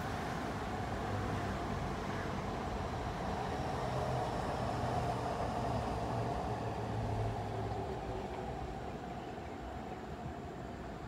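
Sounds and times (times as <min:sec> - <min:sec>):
train rumble and hum: 0:00.0 - 0:11.0.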